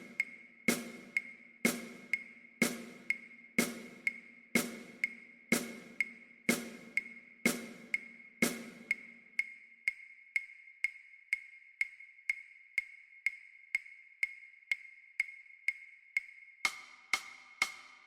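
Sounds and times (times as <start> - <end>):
metronome clicking: 0.0 - 18.0
snare drum strikes: 0.7 - 9.0, 16.7 - 18.0.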